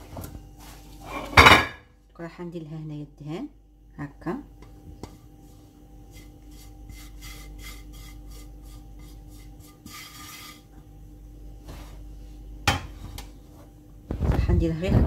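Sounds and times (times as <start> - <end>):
hand rubbing fat onto dough: 5.2 - 10.7.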